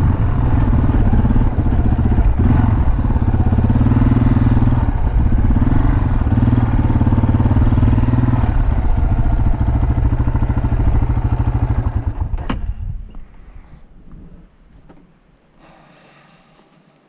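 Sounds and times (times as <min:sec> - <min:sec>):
dirt bike engine running: 0:00.0 - 0:12.4.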